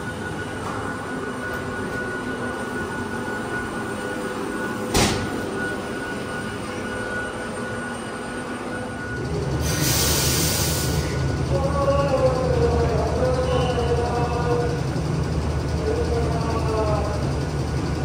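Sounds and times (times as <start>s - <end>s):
railcar hum with faint whine: 0.0s - 18.0s
sharp clunk: 4.9s - 5.3s.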